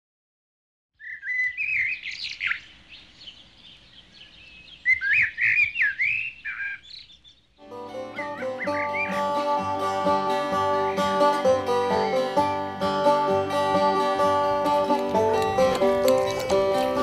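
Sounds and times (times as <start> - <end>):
bird chirping: 1.0 - 9.5
guitar music: 7.6 - 17.0.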